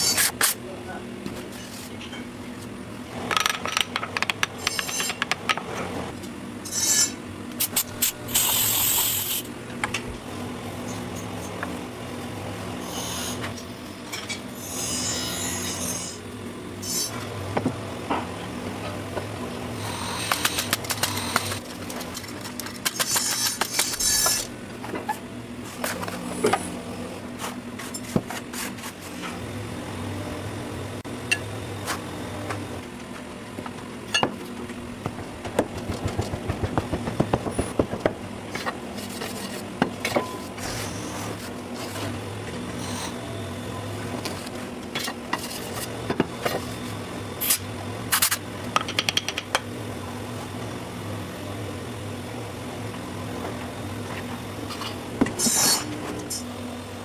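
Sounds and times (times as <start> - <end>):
machine running steadily: 0.0 - 57.0
short hissing bursts: 8.3 - 9.4.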